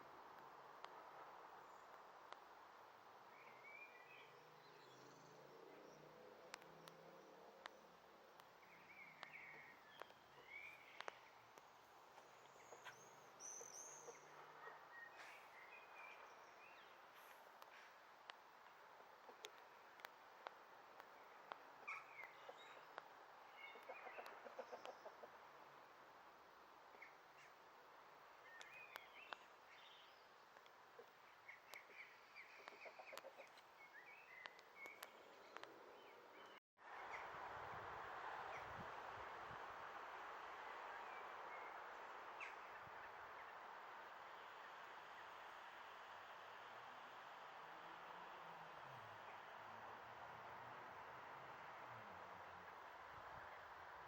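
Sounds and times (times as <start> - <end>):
faint outdoor hiss: 0.0 - 54.0
small birds chirping: 0.8 - 37.3
small ticks: 6.4 - 10.2, 10.9 - 13.0.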